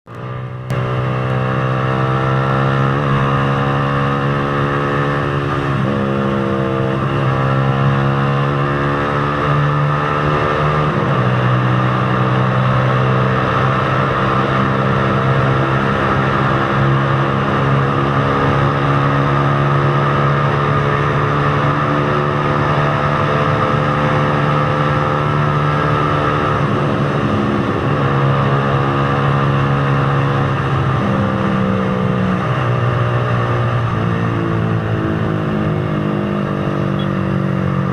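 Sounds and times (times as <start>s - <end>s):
motorcycle engine running: 0.1s - 37.9s
road and wind noise: 0.1s - 37.9s.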